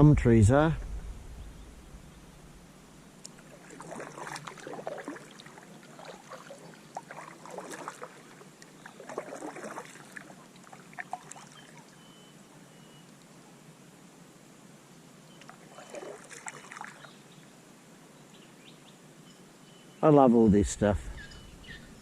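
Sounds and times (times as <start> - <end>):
paddle strokes splashing water: 3.3 - 12.0, 15.4 - 17.1.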